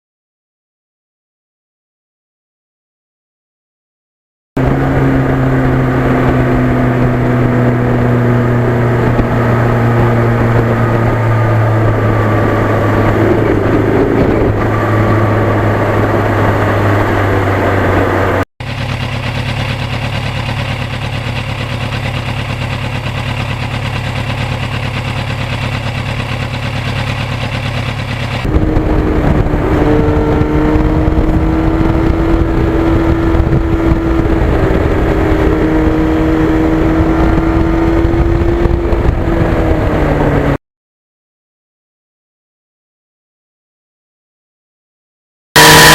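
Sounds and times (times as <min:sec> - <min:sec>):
motorcycle engine cruising: 0:04.6 - 0:40.6, 0:45.6 - 0:45.9.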